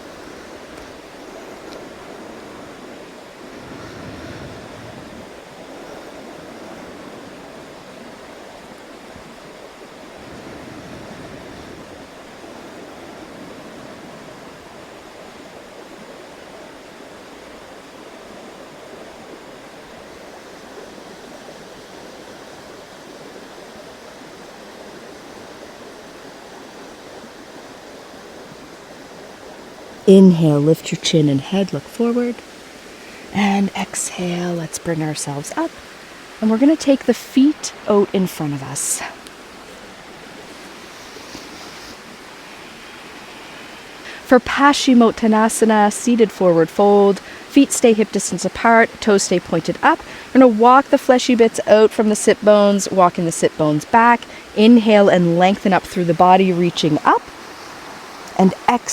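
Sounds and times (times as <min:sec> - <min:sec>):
river rushing: 0:00.0 - 0:58.9.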